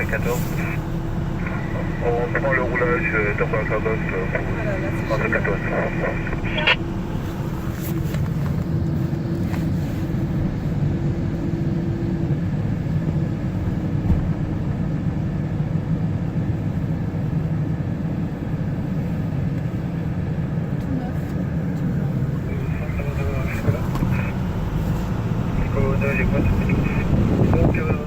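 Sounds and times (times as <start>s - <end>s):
faint hum: 0.0s - 8.3s, 21.9s - 28.0s
car engine and road rumble: 0.0s - 28.0s.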